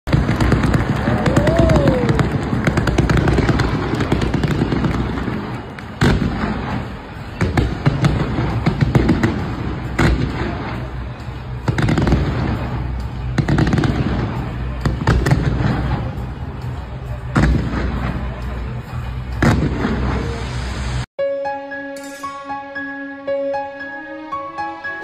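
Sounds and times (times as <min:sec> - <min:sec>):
firework bangs: 0:00.1 - 0:21.1
fireworks crackling: 0:00.1 - 0:21.1.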